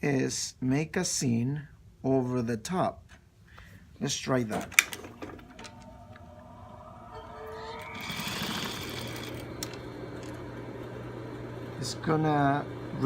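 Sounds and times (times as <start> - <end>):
sewing machine motor whine: 5.2 - 13.0.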